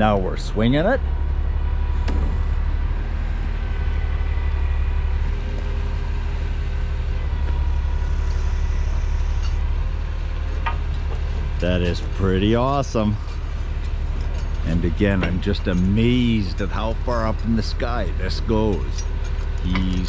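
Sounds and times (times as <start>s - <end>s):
hydraulics whining: 0.0s - 20.0s
truck engine droning under load: 0.0s - 20.0s.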